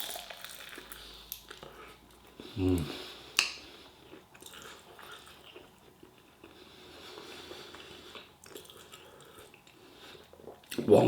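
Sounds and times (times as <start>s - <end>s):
person chewing food: 0.0s - 10.9s.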